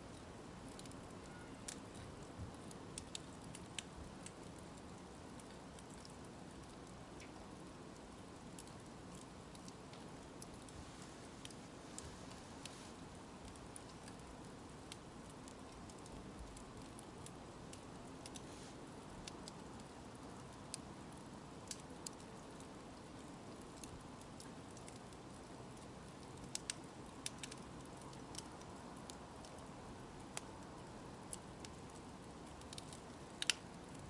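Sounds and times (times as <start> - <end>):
campfire crackling and popping: 0.0 - 34.0.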